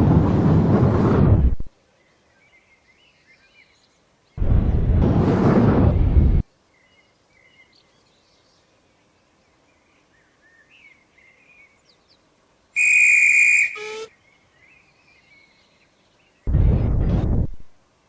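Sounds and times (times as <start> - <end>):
high-pitched whistle blown: 12.8 - 14.1
faint bird chirps: 12.8 - 16.5.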